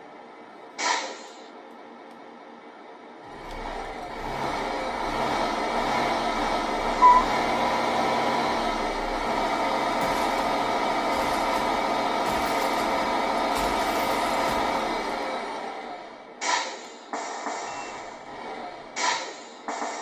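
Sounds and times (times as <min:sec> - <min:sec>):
simulated truck engine from speaker: 0:03.1 - 0:20.0
short sharp beep: 0:07.0 - 0:07.3.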